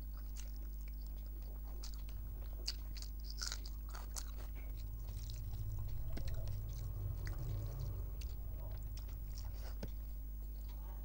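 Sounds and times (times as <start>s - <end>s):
person chewing rice: 0.0s - 5.4s.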